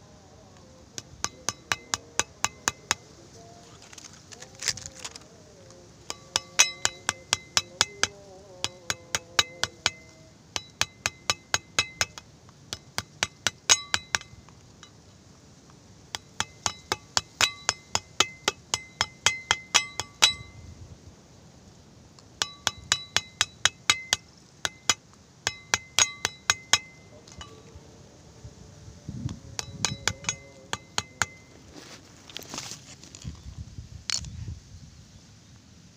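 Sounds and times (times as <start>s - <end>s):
clinking against a glass: 6.1s - 12.2s, 16.2s - 20.6s, 29.6s - 31.4s.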